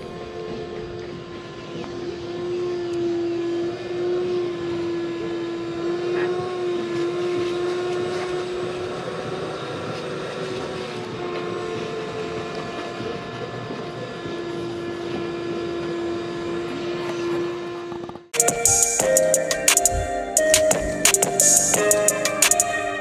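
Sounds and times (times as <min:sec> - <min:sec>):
electric power tool whining: 0:00.0 - 0:18.2.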